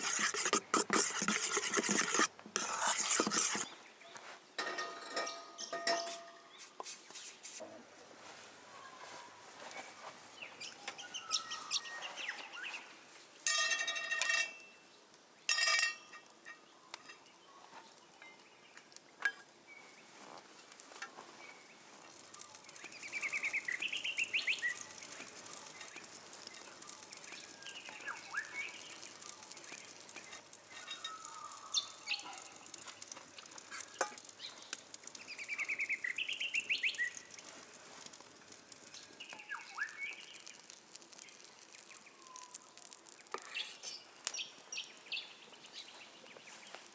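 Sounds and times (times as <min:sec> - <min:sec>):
birds chirping: 0:08.9 - 0:13.0, 0:21.1 - 0:37.5, 0:38.9 - 0:46.9
light clicks and crackles: 0:13.4 - 0:46.9.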